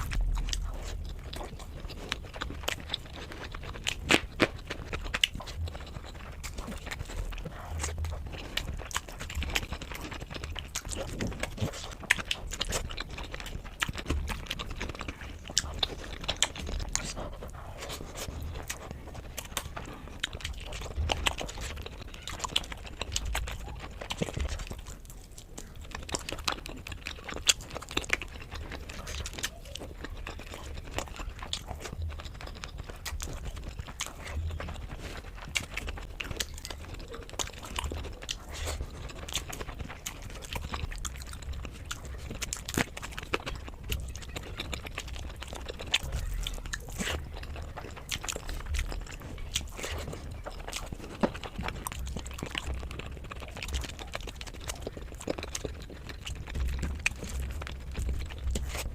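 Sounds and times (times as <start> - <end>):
person chewing food: 0.0 - 58.9.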